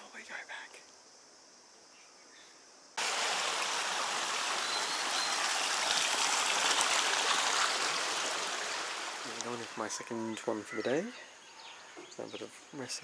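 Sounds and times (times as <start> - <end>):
faint high hiss: 0.0 - 13.0
rushing water: 3.0 - 10.1.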